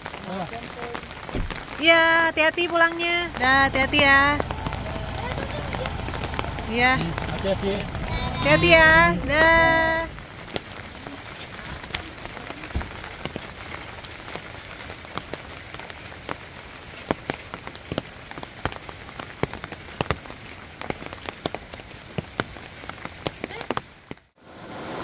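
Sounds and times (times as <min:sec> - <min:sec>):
heavy drops hitting umbrellas: 0:00.0 - 0:24.3
steady rain: 0:00.0 - 0:25.0.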